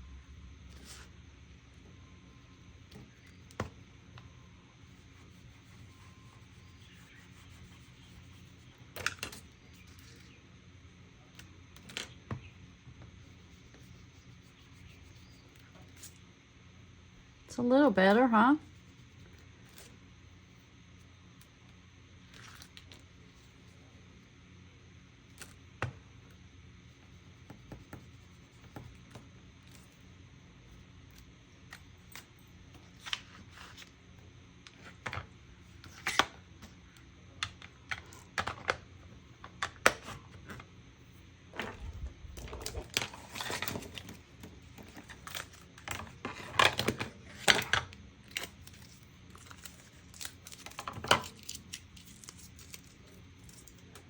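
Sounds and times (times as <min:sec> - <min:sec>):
art supplies and paper handled: 0:02.4 - 0:10.6, 0:22.2 - 0:23.8, 0:26.9 - 0:54.0.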